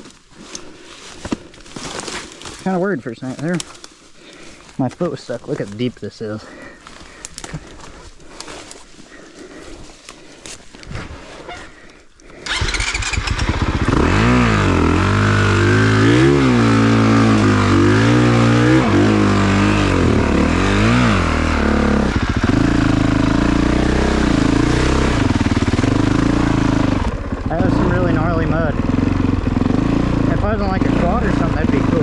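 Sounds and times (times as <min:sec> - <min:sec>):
dirt bike engine revving: 0:12.4 - 0:32.0.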